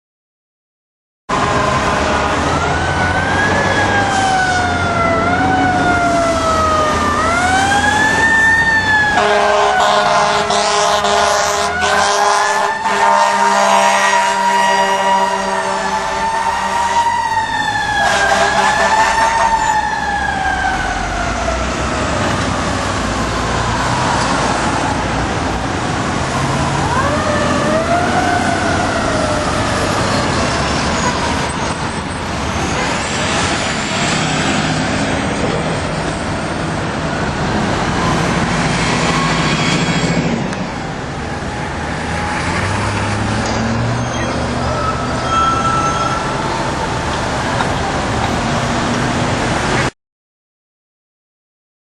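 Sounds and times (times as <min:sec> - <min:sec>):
fire truck siren wailing: 0:01.3 - 0:49.9
street traffic noise: 0:01.3 - 0:49.9
truck engine: 0:01.3 - 0:49.9.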